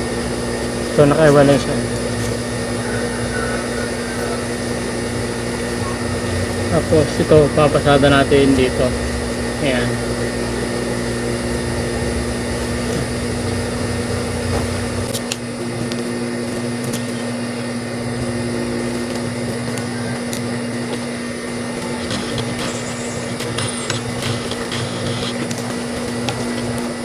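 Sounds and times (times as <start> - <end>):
low rumble: 5.7 - 15.1.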